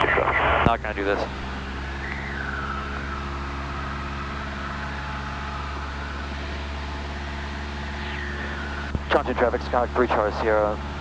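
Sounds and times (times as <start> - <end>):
light aircraft engine and propeller: 0.0 - 11.0
faint high whistle: 1.8 - 9.0.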